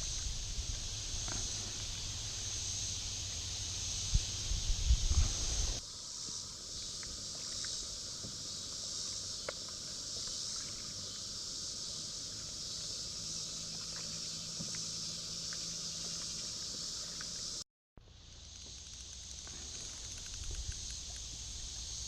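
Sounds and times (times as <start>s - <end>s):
insects chorus: 0.0s - 22.0s
faint ticks: 13.8s - 17.6s, 18.5s - 22.0s.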